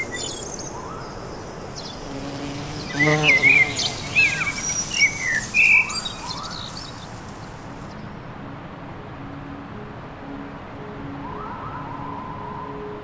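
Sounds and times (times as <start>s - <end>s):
small birds chirping: 0.0s - 8.1s.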